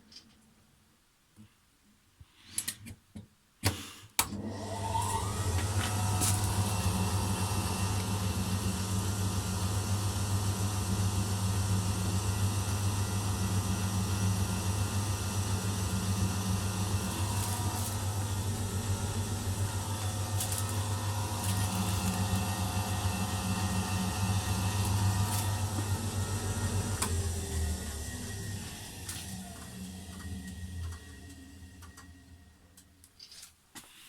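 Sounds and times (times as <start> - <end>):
washing machine motor spinning: 4.3 - 33.0.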